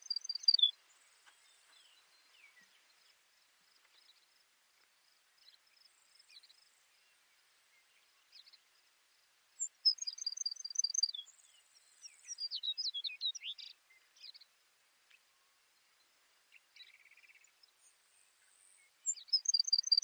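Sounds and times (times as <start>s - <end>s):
sparrow singing: 0.0s - 3.0s, 9.6s - 14.5s, 18.8s - 20.0s
faint high insect hiss: 0.0s - 20.0s.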